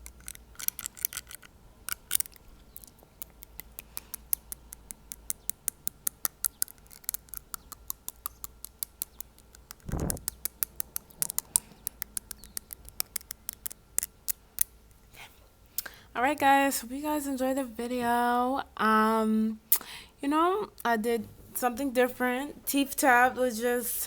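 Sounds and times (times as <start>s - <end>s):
fingernail tapping on teeth: 3.2s - 13.8s
low rush of air: 9.8s - 10.3s.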